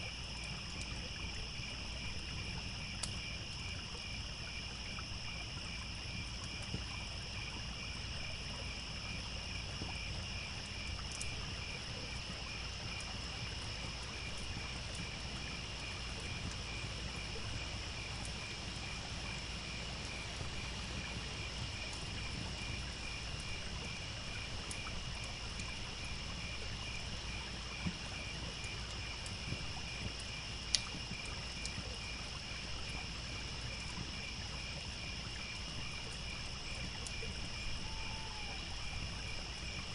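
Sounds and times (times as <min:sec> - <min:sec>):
crickets chirping: 0:00.0 - 0:39.9
trickling stream: 0:00.0 - 0:39.9
campfire crackling pops: 0:02.4 - 0:03.3, 0:11.1 - 0:11.8, 0:27.8 - 0:31.9.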